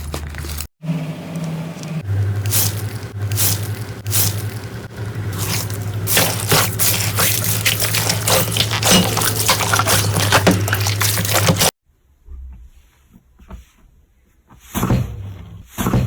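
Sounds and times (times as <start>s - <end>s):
steady low hum: 0.0s - 11.7s.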